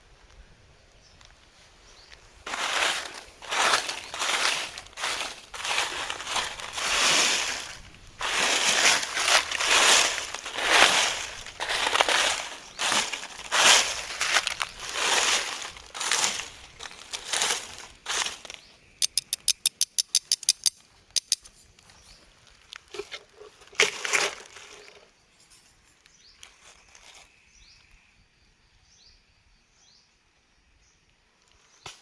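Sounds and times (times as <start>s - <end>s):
crunching and rustling strokes: 1.2s - 18.7s, 21.5s - 27.3s
sharp clicks: 19.0s - 21.5s.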